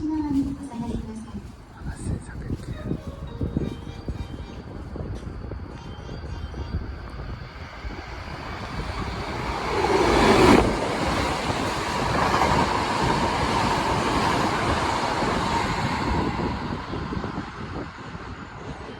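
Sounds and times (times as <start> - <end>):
high-speed train passing: 0.0 - 18.9.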